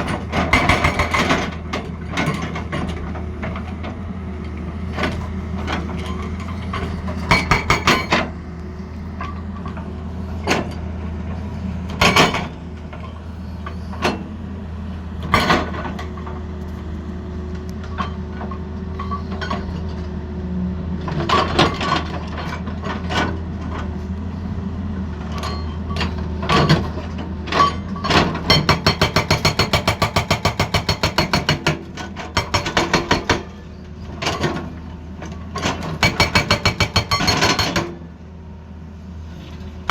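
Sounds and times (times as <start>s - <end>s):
diesel engine running: 0.0s - 29.5s
hydraulic breaker hammering: 0.4s - 1.6s, 7.1s - 8.4s, 12.0s - 12.6s, 28.5s - 33.6s, 35.6s - 38.0s.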